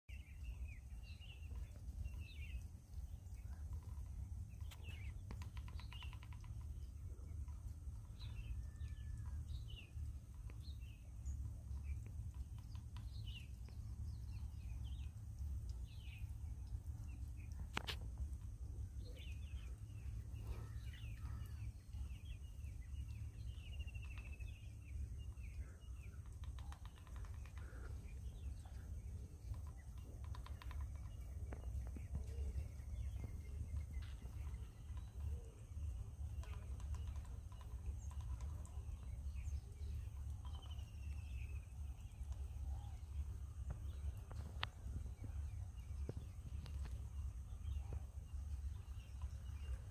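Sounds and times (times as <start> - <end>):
sparrow chirping: 0.1 - 49.9
steady low rumble: 0.1 - 49.9.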